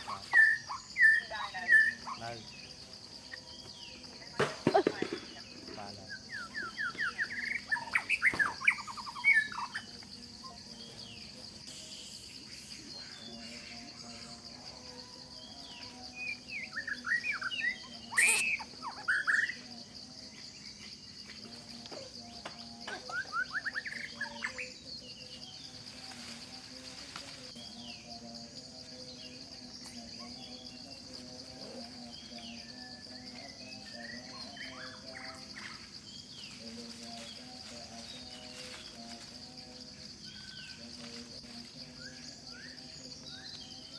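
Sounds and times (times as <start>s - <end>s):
high-pitched insect drone: 0.0s - 43.9s
bird chirps and calls: 6.1s - 10.0s, 16.2s - 19.6s
bird singing sweeping notes: 16.3s - 19.4s.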